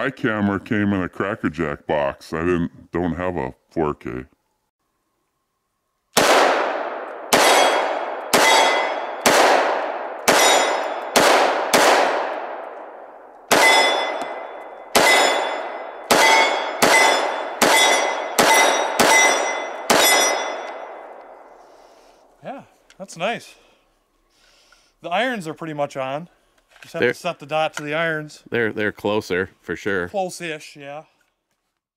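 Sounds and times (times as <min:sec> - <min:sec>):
pistol shots ringing: 0:06.2 - 0:21.4.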